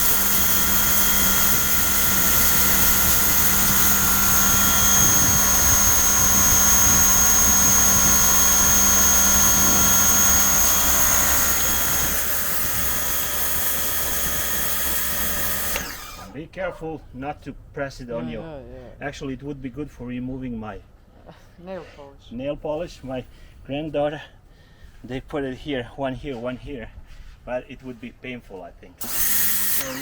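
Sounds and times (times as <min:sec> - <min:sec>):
high-pressure water jet hiss: 0:00.0 - 0:15.8, 0:29.0 - 0:30.0
pressure washer motor whine: 0:00.0 - 0:16.4, 0:29.0 - 0:30.0.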